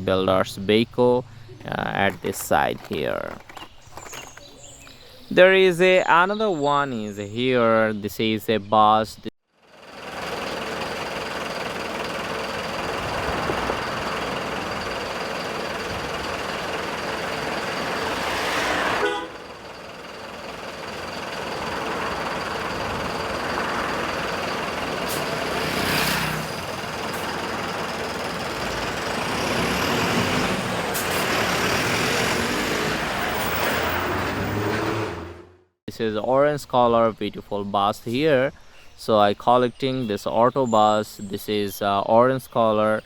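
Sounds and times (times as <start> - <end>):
large road vehicle running: 9.6 - 35.8
horn tooting: 10.0 - 35.6.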